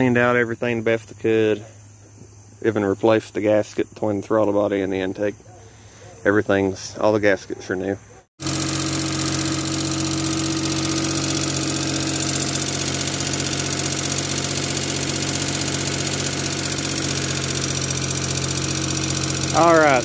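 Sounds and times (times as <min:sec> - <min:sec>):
car engine idling: 0:08.4 - 0:20.0.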